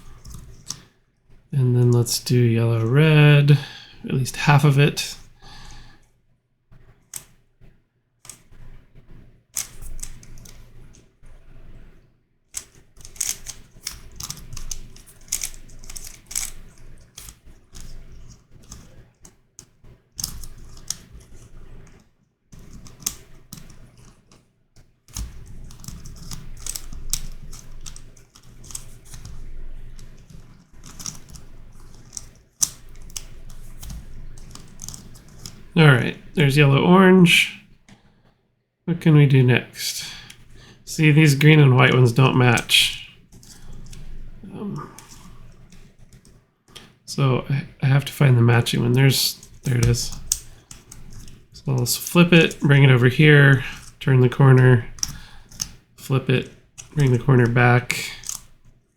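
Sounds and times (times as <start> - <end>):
plastic puzzle pieces clicking: 12.6 - 21.5, 22.6 - 24.3, 25.1 - 35.7, 43.4 - 44.2, 45.0 - 46.9, 49.3 - 51.7, 53.7 - 54.0, 54.9 - 55.8, 56.4 - 58.6.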